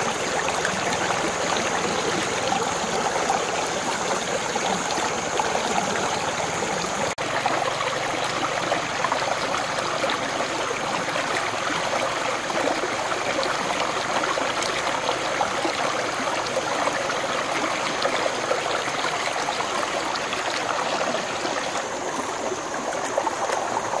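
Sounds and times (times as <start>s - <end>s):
running water: 0.0s - 24.0s.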